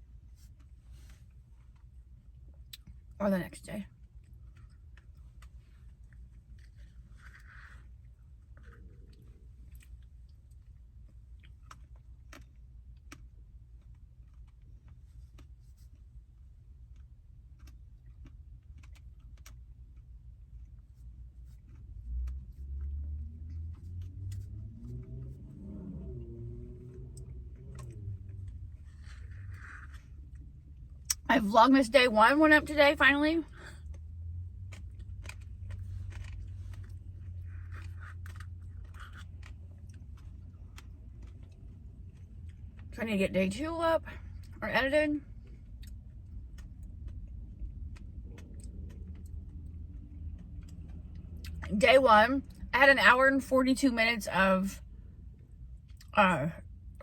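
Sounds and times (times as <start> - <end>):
chewing and crunching food: 0.0 - 43.0, 43.6 - 51.8, 54.8 - 57.0
low steady hum: 0.0 - 57.0
low rumble: 21.4 - 52.8.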